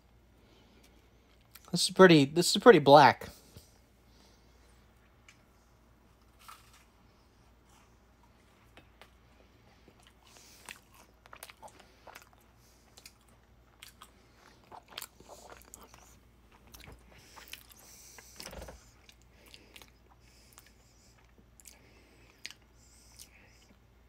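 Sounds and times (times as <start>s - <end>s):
crunching and chewing sandwich: 5.1s - 24.0s.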